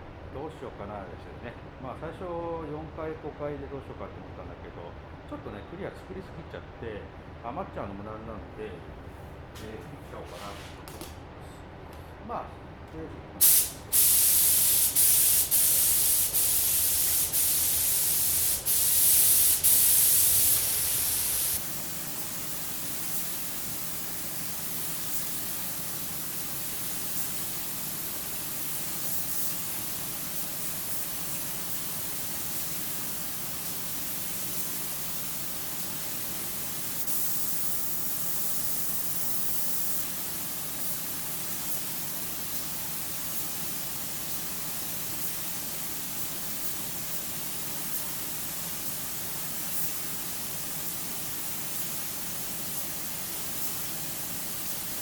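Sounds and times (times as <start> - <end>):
paint spray gun hissing: 13.4 - 55.0.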